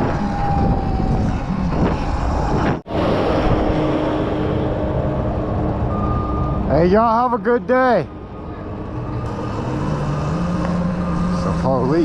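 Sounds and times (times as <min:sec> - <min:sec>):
wind noise: 0:00.0 - 0:06.7
road rumble: 0:00.0 - 0:12.0.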